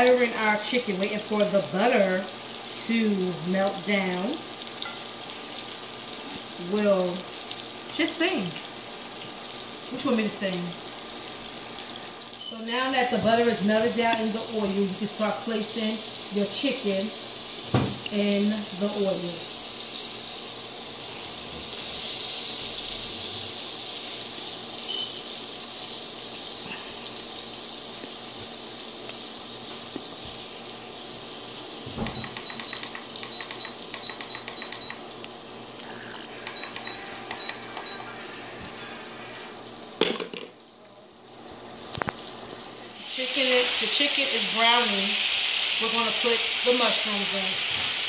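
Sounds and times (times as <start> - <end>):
chicken sizzling in oil: 0.0 - 48.0.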